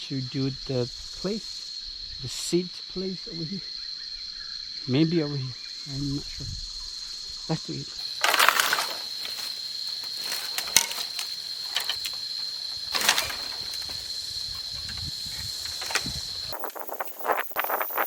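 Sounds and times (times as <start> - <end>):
insects droning: 0.0 - 18.0
knocks and rustles in undergrowth: 8.0 - 18.0.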